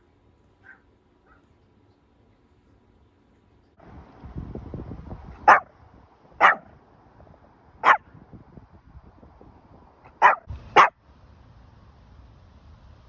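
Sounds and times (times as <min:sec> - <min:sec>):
small dog barking: 0:00.6 - 0:01.5, 0:05.4 - 0:05.7, 0:06.3 - 0:06.8, 0:07.8 - 0:08.1, 0:10.1 - 0:11.0.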